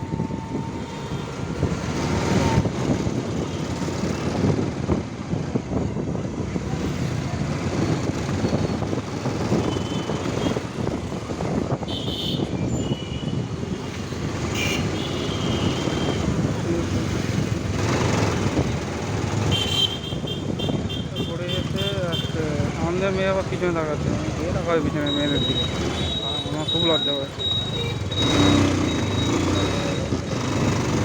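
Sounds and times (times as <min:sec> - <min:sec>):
wind rushing over microphone: 0:00.0 - 0:21.2
motorcycle engine: 0:13.8 - 0:21.0, 0:23.6 - 0:31.0.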